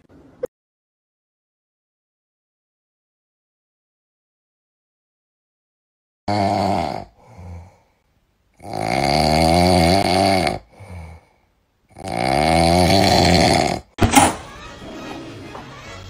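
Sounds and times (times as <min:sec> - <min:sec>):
loud snoring: 0:06.3 - 0:07.8, 0:08.6 - 0:11.3, 0:11.9 - 0:14.0
quiet music: 0:14.0 - 0:16.0.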